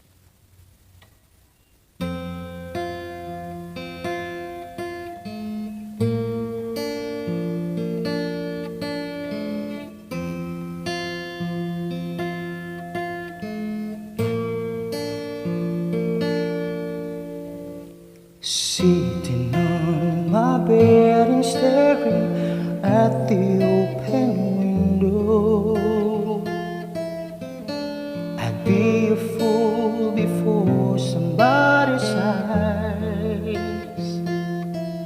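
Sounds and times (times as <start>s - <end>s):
acoustic guitar chords: 0.0s - 35.0s.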